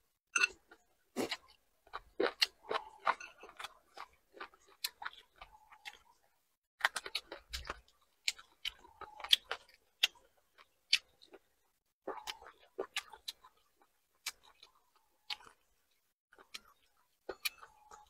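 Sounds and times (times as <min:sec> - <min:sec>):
wet chewing smacks and clicks: 0:12.0 - 0:15.7.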